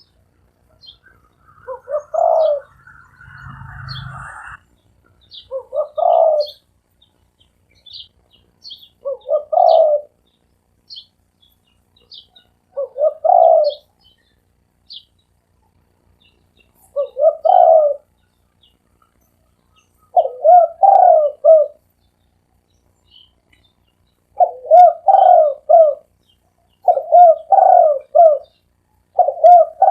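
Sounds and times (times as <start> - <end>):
small birds chirping: 0.0 - 29.9
dove cooing: 0.7 - 4.6, 5.3 - 6.7, 9.0 - 10.2, 12.1 - 14.0, 16.8 - 18.1, 20.1 - 21.9, 24.4 - 26.2, 26.8 - 29.9.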